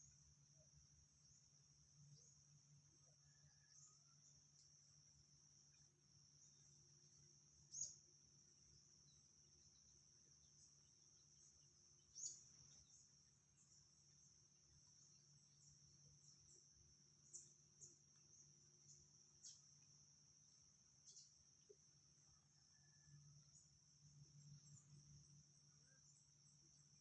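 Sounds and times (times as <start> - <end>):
faint low hum: 0.0 - 27.0
high insect trill: 0.0 - 27.0.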